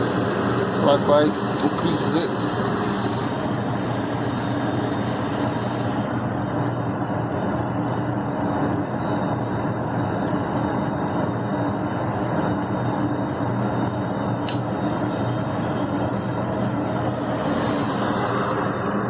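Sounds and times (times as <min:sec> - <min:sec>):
constant low hum: 0:00.0 - 0:19.0
gas furnace rushing: 0:00.0 - 0:19.0.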